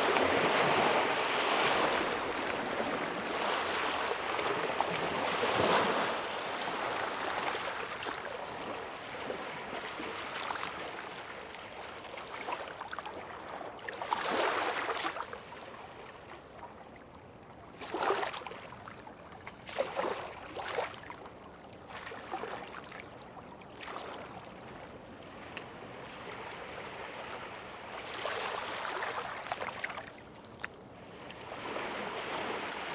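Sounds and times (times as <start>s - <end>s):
waves splashing: 0.0s - 10.8s, 25.3s - 32.9s
ocean waves washing ashore: 0.0s - 11.9s, 30.9s - 32.9s.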